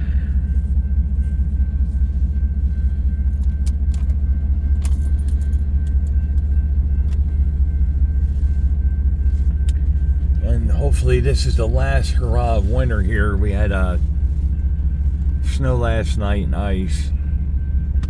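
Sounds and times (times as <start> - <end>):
diesel locomotive engine rumbling: 0.0 - 18.0.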